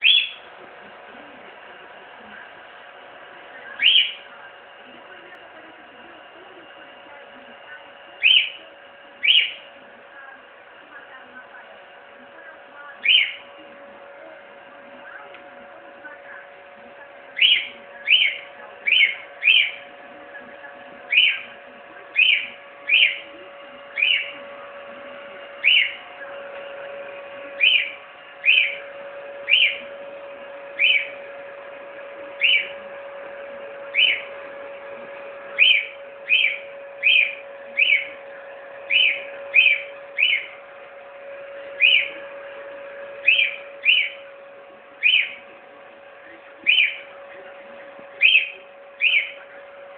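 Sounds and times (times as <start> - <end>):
cockatiel chirping: 0.0 - 0.5, 3.8 - 4.2, 8.2 - 8.6, 9.2 - 9.7, 13.0 - 13.5, 17.3 - 19.8, 21.0 - 23.3, 23.9 - 24.4, 25.5 - 26.0, 27.6 - 29.9, 30.7 - 31.2, 32.3 - 32.8, 33.8 - 34.3, 35.5 - 38.2, 38.8 - 40.6, 41.7 - 42.2, 43.2 - 44.2, 45.0 - 45.4, 46.6 - 47.1, 48.2 - 49.4
hair dryer humming: 0.0 - 49.9.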